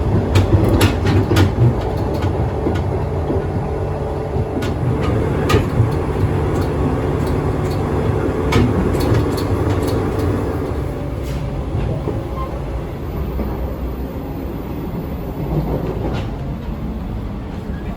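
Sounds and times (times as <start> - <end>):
wheels clicking over rail joints: 0.0 - 12.4
train rumble and hum: 0.0 - 17.9.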